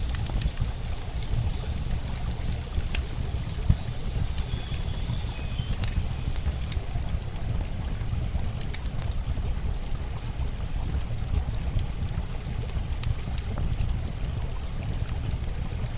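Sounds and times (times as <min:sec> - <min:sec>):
campfire crackling: 0:00.0 - 0:15.9
running water flowing: 0:00.0 - 0:15.9
thin high whistle: 0:00.2 - 0:06.3.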